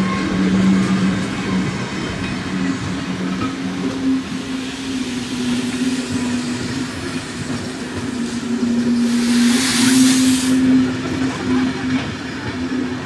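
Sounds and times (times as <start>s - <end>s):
train coaches rolling on rails: 0.0s - 13.0s
steam hissing: 3.7s - 11.5s.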